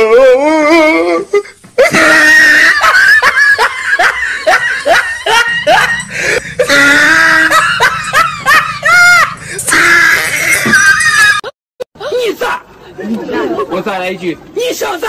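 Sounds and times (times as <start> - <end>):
comic high-pitched laughter: 1.8 - 11.5.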